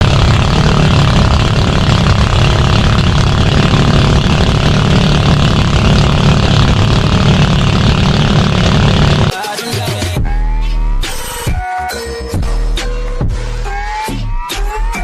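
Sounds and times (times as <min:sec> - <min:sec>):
boat engine running loudly: 0:00.0 - 0:09.3.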